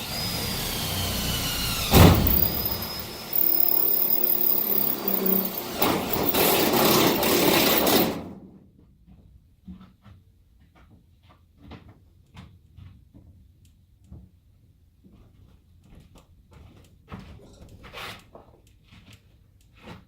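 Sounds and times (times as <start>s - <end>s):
power drill drilling: 0.0s - 8.4s.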